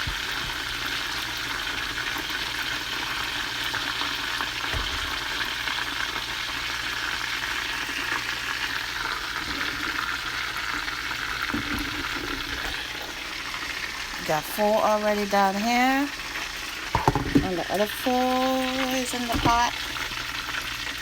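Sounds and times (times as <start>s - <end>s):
chicken sizzling in oil: 0.0s - 21.0s
utensil knocking pan: 16.9s - 19.8s.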